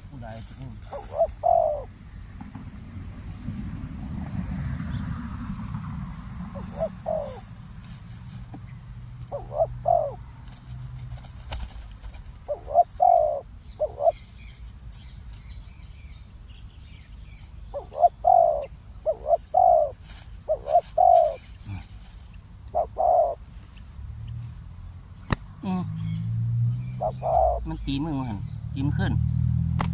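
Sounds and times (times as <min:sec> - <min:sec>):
small birds chirping faintly: 0:00.0 - 0:03.5, 0:06.5 - 0:29.5
doves cooing: 0:00.7 - 0:02.1, 0:06.4 - 0:07.6, 0:09.1 - 0:11.6, 0:12.2 - 0:14.6, 0:17.7 - 0:23.4, 0:25.6 - 0:28.5.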